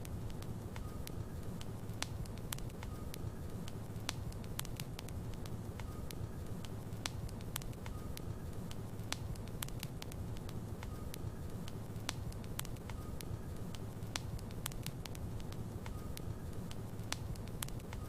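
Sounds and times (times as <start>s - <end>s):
wood logs burning with crackles: 0.0s - 18.0s.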